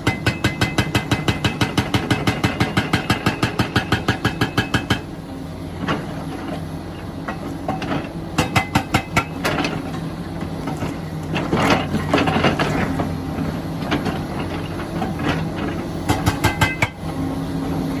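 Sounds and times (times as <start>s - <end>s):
hydraulic breaker hammering rock: 0.0s - 5.2s, 7.2s - 10.0s, 13.8s - 17.1s
excavator diesel engine running: 0.0s - 18.0s.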